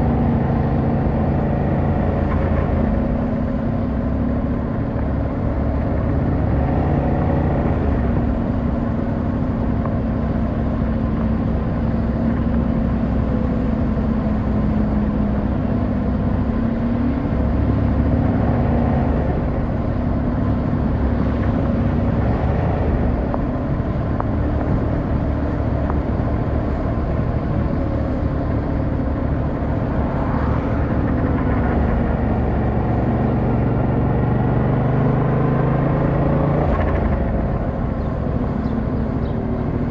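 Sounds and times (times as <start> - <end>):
rushing wind: 0.0 - 39.9.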